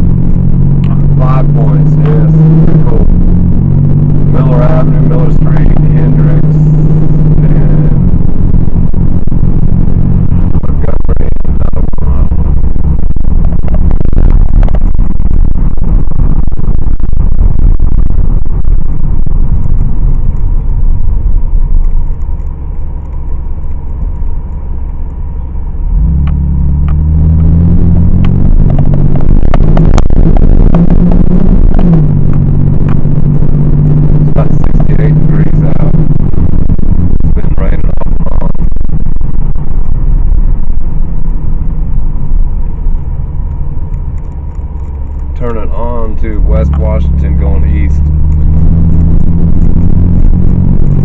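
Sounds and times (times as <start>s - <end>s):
tyre and engine rumble in car: 0.0s - 51.0s
sharp clicks: 18.1s - 25.6s, 34.3s - 51.0s.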